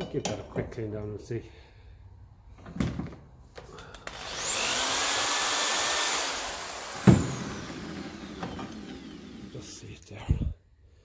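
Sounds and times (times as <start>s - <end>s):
handheld power tool whining: 3.8s - 9.8s.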